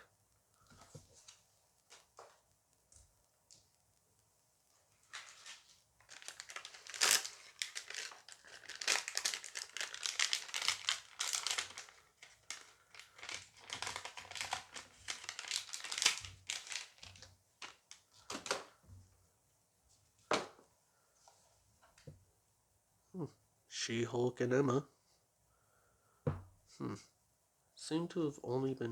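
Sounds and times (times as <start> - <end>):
plastic wrapper crinkling and tearing: 5.0 - 18.7.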